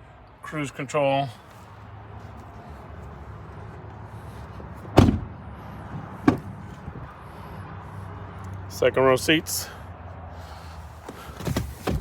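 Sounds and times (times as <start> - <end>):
truck door slamming: 4.8 - 6.6, 11.3 - 12.0.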